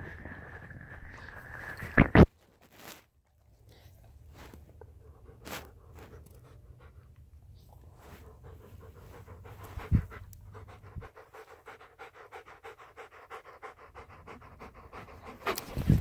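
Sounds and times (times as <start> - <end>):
dog panting: 5.0 - 16.0.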